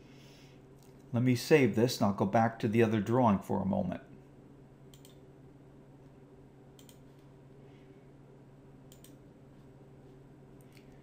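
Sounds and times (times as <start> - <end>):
low steady hum: 0.0 - 11.0
faint computer mouse clicks: 4.9 - 5.2, 6.8 - 7.0, 8.9 - 9.2.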